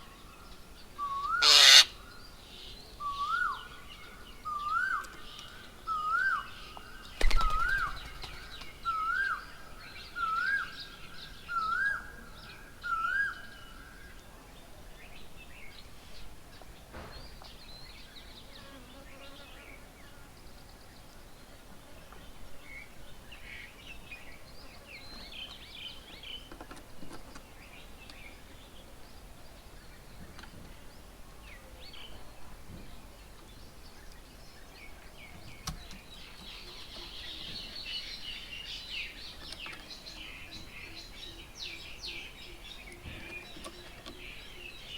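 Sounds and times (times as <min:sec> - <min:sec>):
other birds chirping: 0:01.0 - 0:02.1.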